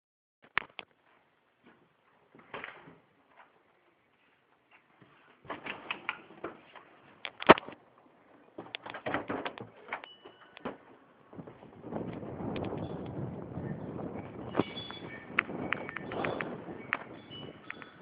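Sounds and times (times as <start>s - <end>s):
crackles and knocks: 0.4s - 1.0s, 5.5s - 18.0s
wind buffeting microphone: 11.2s - 18.0s.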